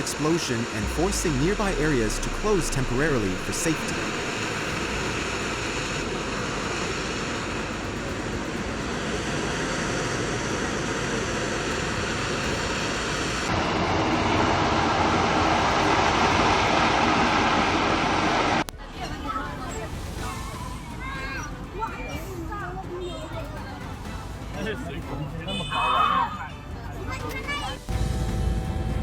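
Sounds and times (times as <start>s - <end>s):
high-pressure gas roaring: 0.0s - 18.7s.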